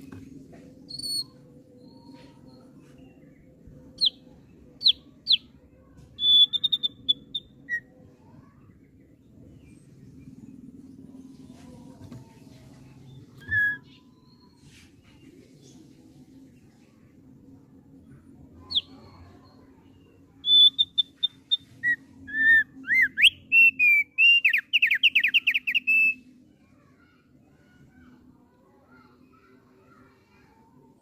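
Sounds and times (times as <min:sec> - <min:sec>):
faint low hum: 0:00.0 - 0:31.0
bird singing whistled notes: 0:04.0 - 0:04.2, 0:04.8 - 0:05.4, 0:06.2 - 0:07.9, 0:13.4 - 0:14.6, 0:18.7 - 0:19.6, 0:20.4 - 0:26.2.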